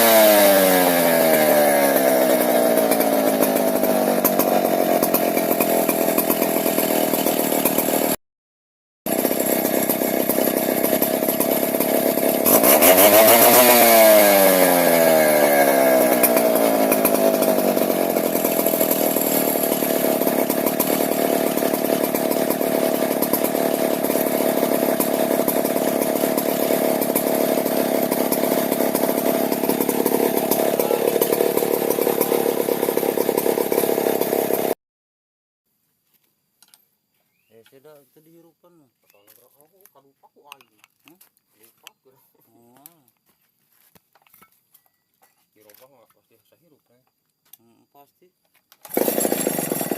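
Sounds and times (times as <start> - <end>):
chainsaw engine running: 0.0 - 8.2, 9.1 - 34.8, 48.8 - 49.9.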